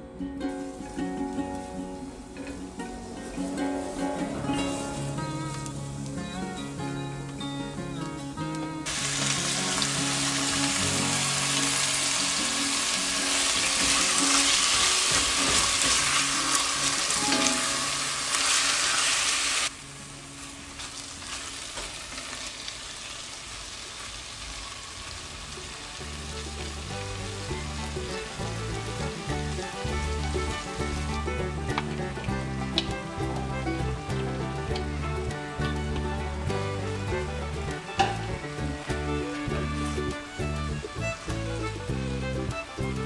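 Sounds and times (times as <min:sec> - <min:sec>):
chicken sizzling in hot oil: 0:08.8 - 0:43.0.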